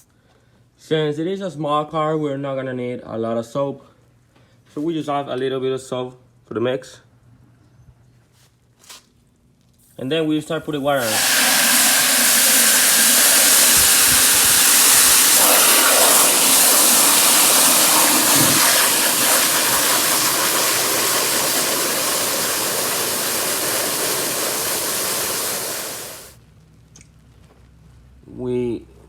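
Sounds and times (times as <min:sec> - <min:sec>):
hose water rushing into bucket: 0:10.4 - 0:26.4.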